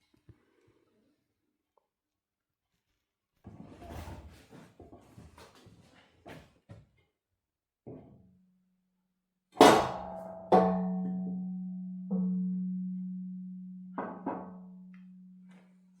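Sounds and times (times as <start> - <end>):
metallic ringing: 10.0 - 15.8
hammer striking metal: 13.9 - 15.0.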